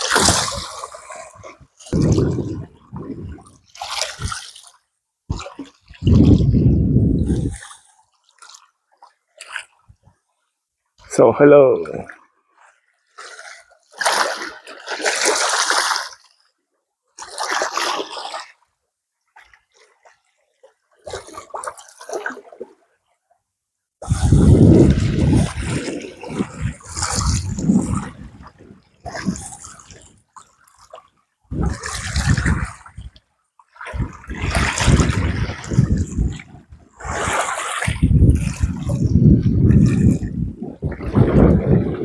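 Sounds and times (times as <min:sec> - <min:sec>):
small waves splashing on shore: 0:00.0 - 0:06.6, 0:12.8 - 0:16.4, 0:17.2 - 0:18.6, 0:24.0 - 0:40.2.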